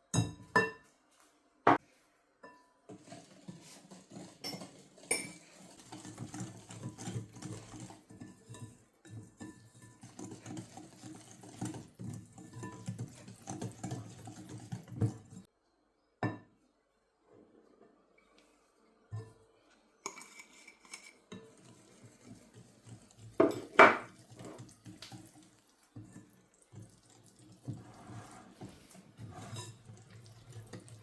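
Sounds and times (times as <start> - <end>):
utensils clinking against dishes: 3.9 - 15.4, 23.4 - 24.7.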